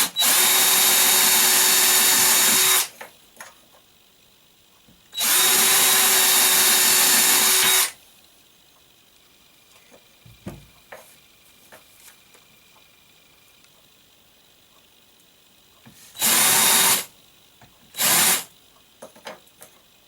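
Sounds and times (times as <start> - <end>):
electric drill running: 0.0 - 2.9, 5.2 - 8.0, 16.2 - 17.1, 18.0 - 18.5.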